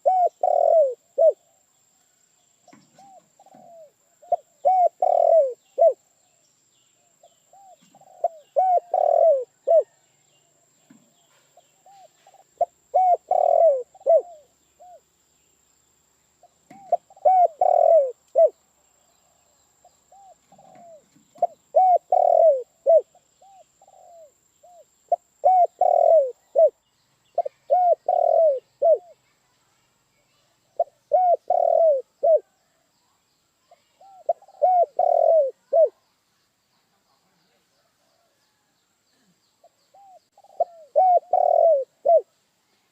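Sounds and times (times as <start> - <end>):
dove cooing: 0.0 - 1.6, 2.7 - 6.0, 7.2 - 10.0, 11.3 - 15.0, 16.7 - 18.6, 20.1 - 26.8, 27.4 - 29.2, 30.8 - 32.6, 34.0 - 36.0, 39.9 - 42.3.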